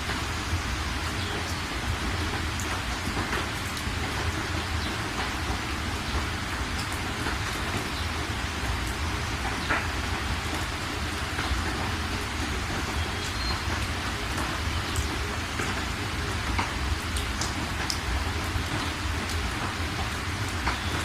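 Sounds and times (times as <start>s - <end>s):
steady rain hiss: 0.0s - 21.0s
drops ticking: 8.8s - 21.0s.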